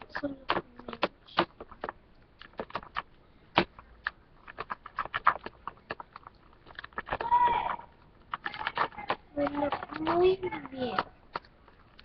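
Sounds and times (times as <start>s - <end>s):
slime being stirred: 0.0s - 12.0s.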